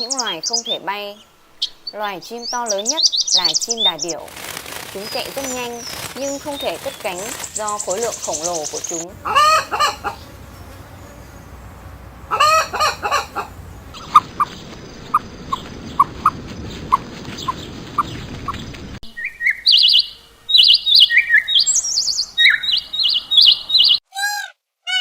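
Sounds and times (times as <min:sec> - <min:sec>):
songbird rapid high chirping: 0:00.0 - 0:24.0
noisy background: 0:04.2 - 0:14.5
chicken clucking: 0:06.4 - 0:14.6.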